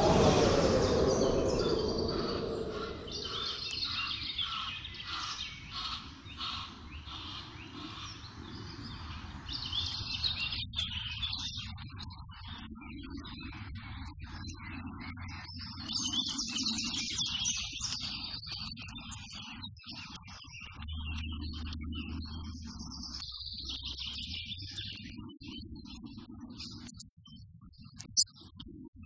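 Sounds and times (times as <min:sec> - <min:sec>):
loud rush of noise: 0:00.0 - 0:04.1
bird chirps: 0:00.0 - 0:07.8
outdoor background noise: 0:00.0 - 0:17.0.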